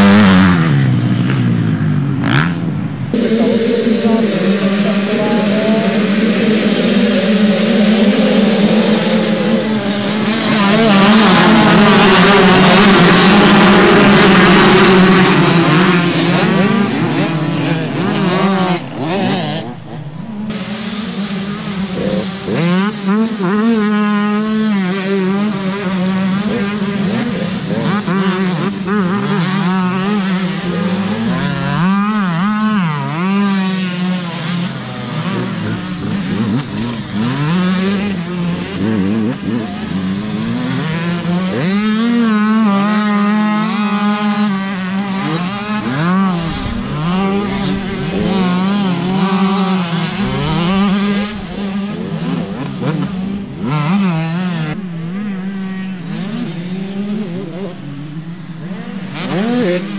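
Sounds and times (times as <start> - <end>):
motocross engines revving: 0.0 - 59.9
low drone: 1.4 - 22.5, 45.8 - 53.6, 54.6 - 59.9.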